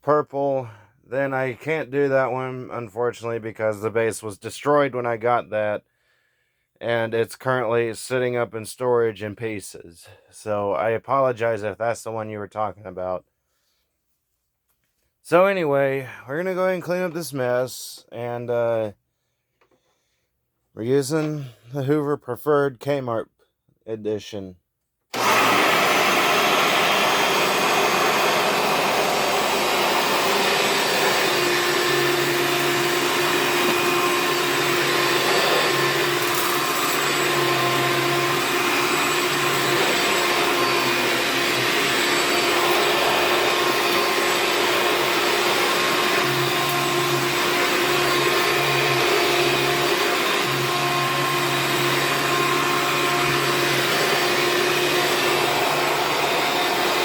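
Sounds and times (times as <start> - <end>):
vacuum cleaner running: 25.1 - 57.0.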